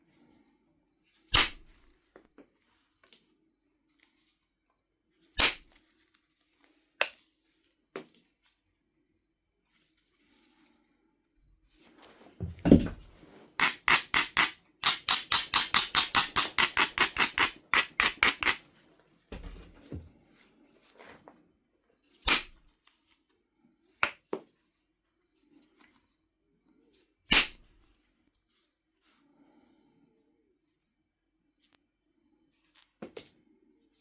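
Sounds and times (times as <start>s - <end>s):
stone thump: 12.4s - 13.1s
sharp stone clicks: 13.6s - 18.6s.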